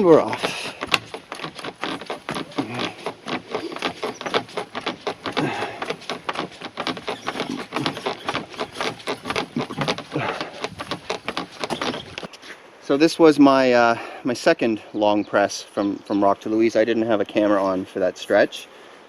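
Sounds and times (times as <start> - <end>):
kayak creaking and knocking: 0.0 - 12.4
footsteps on forest trail: 0.0 - 12.7.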